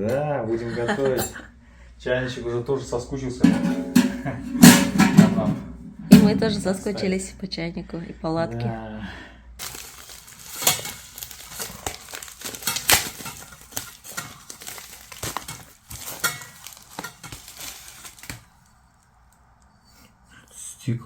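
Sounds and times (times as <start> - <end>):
packaging rustling: 9.6 - 18.7.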